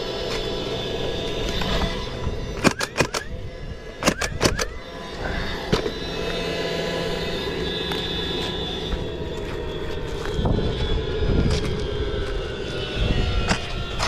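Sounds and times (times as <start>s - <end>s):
engine drone: 0.0s - 14.0s
sharp clicks: 2.6s - 3.3s, 4.0s - 4.7s.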